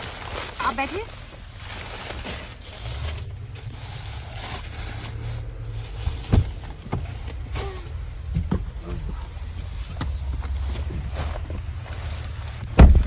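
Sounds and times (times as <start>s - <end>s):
truck engine rumbling: 0.0s - 13.0s
knocks: 12.8s - 13.0s.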